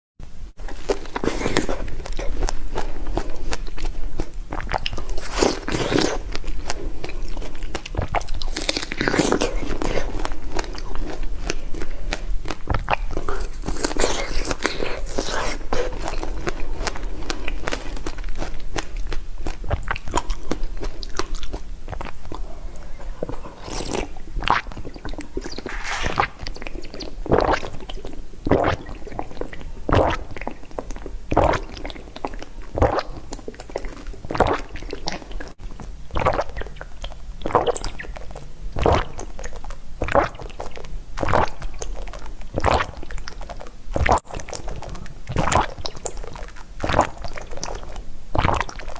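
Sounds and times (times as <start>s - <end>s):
close chewing and eating: 0.4s - 48.9s.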